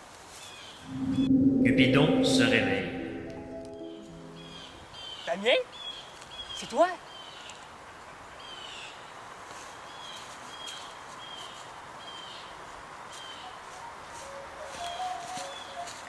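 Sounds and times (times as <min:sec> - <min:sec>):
lower steady bird notes: 0:00.9 - 0:05.1.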